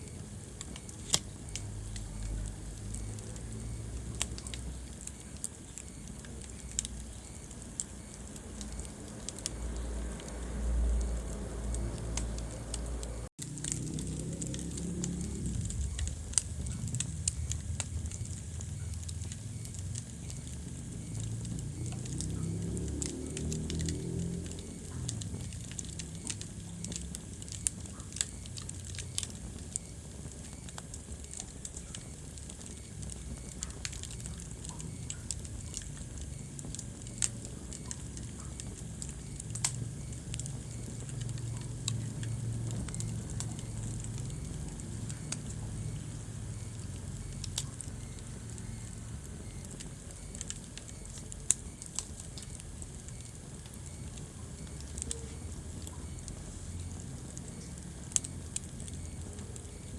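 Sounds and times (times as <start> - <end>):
low rumble of flames: 0.0 - 59.9
wood fire crackling and popping: 0.0 - 59.9.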